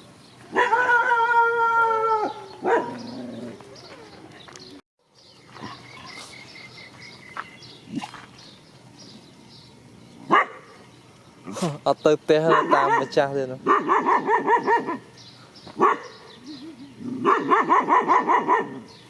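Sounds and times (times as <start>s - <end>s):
dog yelp: 0.5s - 3.0s, 10.3s - 10.7s, 12.5s - 15.1s, 15.8s - 18.9s
dog howling: 0.5s - 4.3s.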